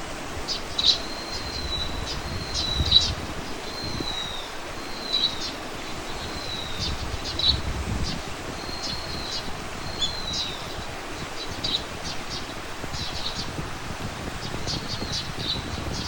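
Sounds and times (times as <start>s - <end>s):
songbird whistling call: 0.5s - 7.6s, 8.6s - 10.8s.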